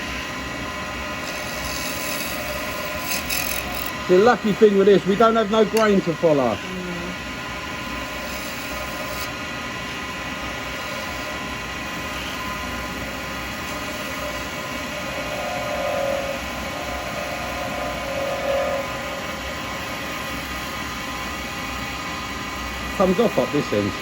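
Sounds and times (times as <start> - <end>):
lathe humming: 0.0 - 24.0
chisel cutting spinning acrylic: 1.1 - 6.6, 7.7 - 9.4, 10.6 - 20.6.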